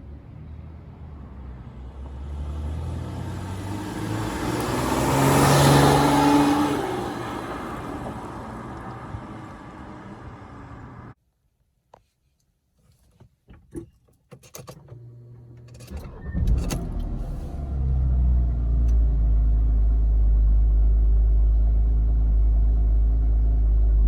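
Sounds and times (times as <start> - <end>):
car passing by: 0.3 - 11.2.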